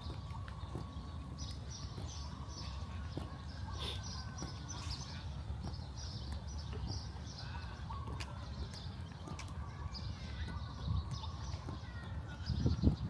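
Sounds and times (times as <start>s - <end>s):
traffic rumble: 0.0s - 13.0s
wind: 0.0s - 13.0s.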